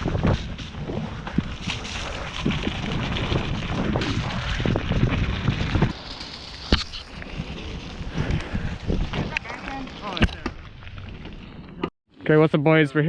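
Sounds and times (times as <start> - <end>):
wind buffeting microphone: 0.0 - 6.0, 6.7 - 11.1
bike tyres rumbling over dirt: 0.0 - 11.9.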